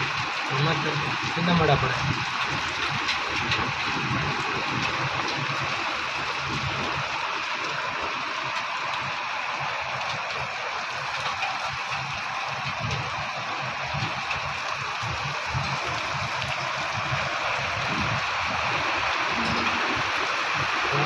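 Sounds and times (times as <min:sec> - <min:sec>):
heavy rain hissing: 0:00.1 - 0:21.0
wind buffeting microphone: 0:12.5 - 0:21.0.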